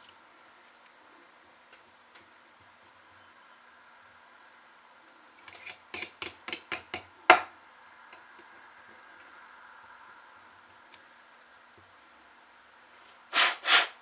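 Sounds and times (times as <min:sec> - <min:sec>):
crickets chirping: 0:00.0 - 0:00.4, 0:01.2 - 0:04.7, 0:07.4 - 0:11.8, 0:12.6 - 0:13.4
tools clicking on a workbench: 0:05.5 - 0:07.1.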